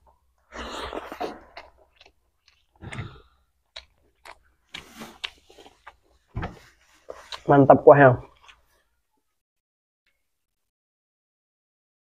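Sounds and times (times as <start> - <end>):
wet chewing and lip-smacking: 0.6 - 7.5, 8.2 - 8.9.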